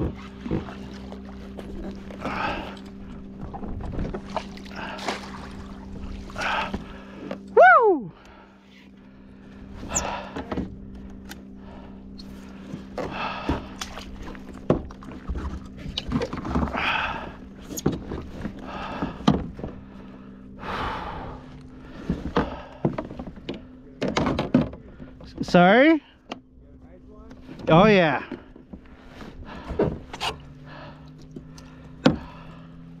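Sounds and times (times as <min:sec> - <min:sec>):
thunks and knocks in boat: 0:00.0 - 0:07.4, 0:09.8 - 0:11.3, 0:12.6 - 0:19.9, 0:21.9 - 0:26.4, 0:27.3 - 0:32.7
steady low hum: 0:00.0 - 0:33.0
water splashing: 0:04.1 - 0:07.2.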